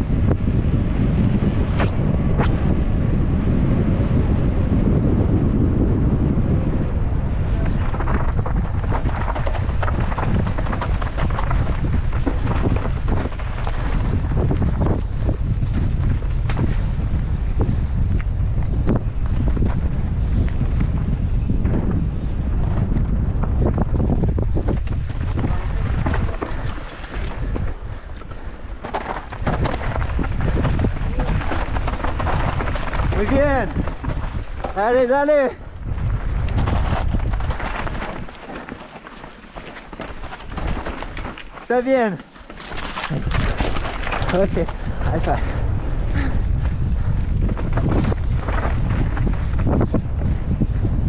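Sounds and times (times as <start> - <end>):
wind buffeting microphone: 0.0 - 51.0
bike clattering over rocks: 7.6 - 16.8, 21.6 - 45.4, 47.4 - 50.5.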